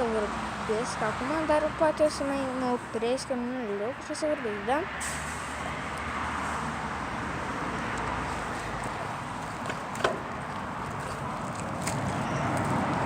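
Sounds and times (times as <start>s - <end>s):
bicycle riding rush: 6.1s - 13.0s.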